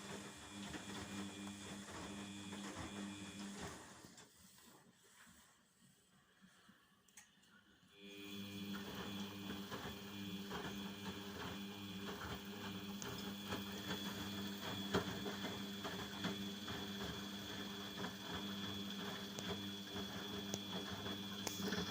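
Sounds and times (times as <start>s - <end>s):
washing machine running: 0.0s - 4.4s, 8.0s - 21.9s.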